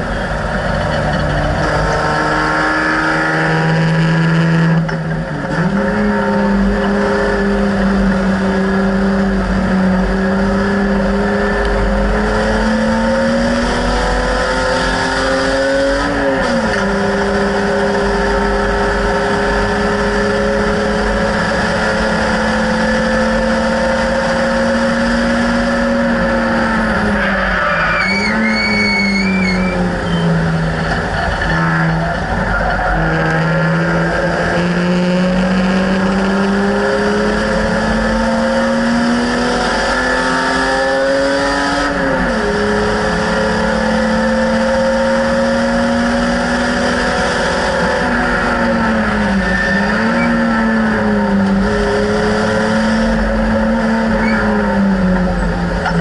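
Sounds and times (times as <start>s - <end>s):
race car engine revving: 0.0s - 56.0s
tyres squealing: 27.1s - 33.1s.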